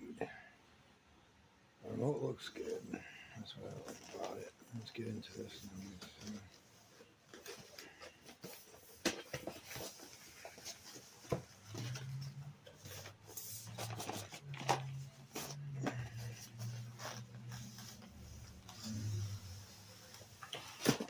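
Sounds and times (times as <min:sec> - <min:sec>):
packaging being handled: 0:07.3 - 0:21.0.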